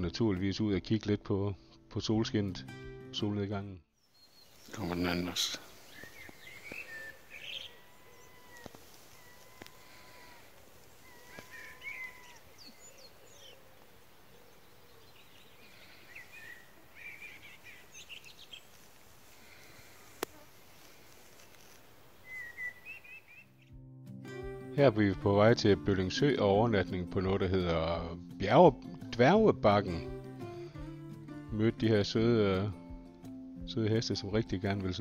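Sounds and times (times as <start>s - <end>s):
wild birds singing: 4.0s - 23.8s, 33.8s - 35.0s.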